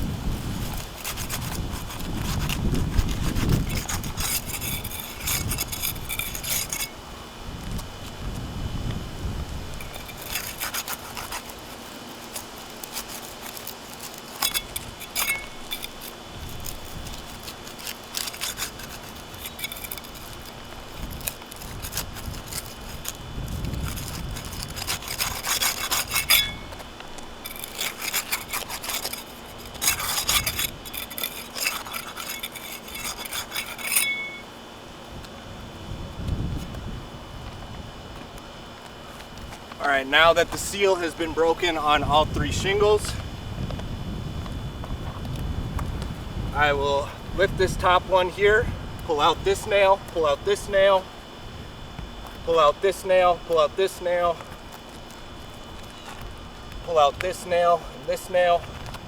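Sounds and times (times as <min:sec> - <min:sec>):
scraping and crackling: 0:00.0 - 0:35.3, 0:51.9 - 0:59.0.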